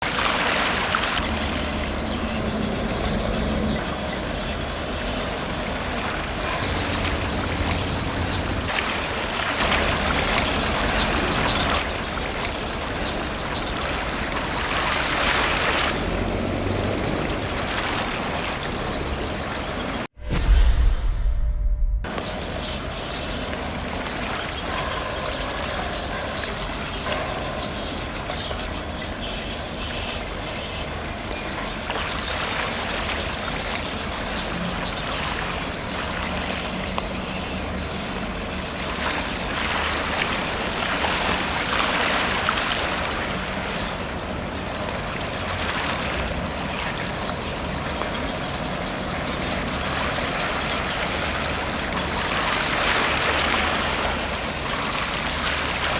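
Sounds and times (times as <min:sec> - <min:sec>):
rushing wake water: 0:00.0 - 0:20.2, 0:22.1 - 0:55.9
ship engine rumble: 0:00.2 - 0:26.8.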